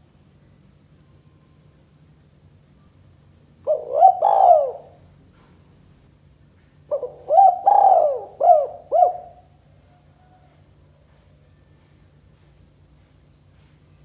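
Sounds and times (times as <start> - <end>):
dove cooing: 3.6 - 5.0, 6.9 - 9.4.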